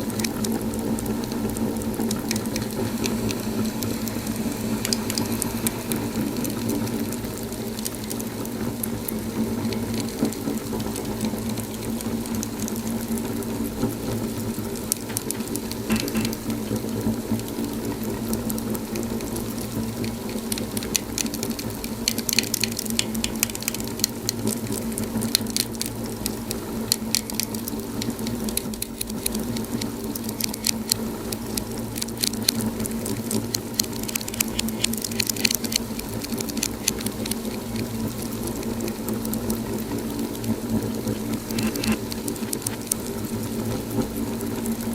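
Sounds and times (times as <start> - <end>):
wood fire crackling: 0.0 - 44.9.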